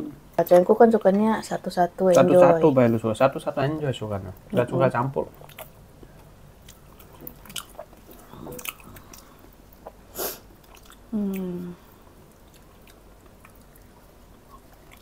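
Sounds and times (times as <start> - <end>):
person chewing: 5.3 - 15.0
person humming mmm: 11.1 - 11.9.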